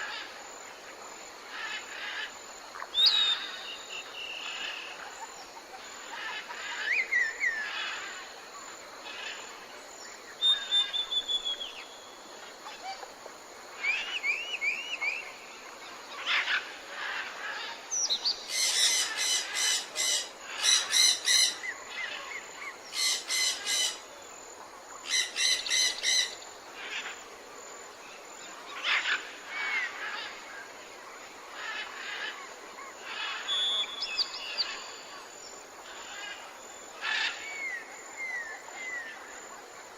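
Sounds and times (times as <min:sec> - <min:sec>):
tropical birds whistling chirps: 0:02.9 - 0:05.3, 0:06.3 - 0:08.0, 0:10.4 - 0:12.1, 0:13.8 - 0:15.4, 0:33.1 - 0:35.1.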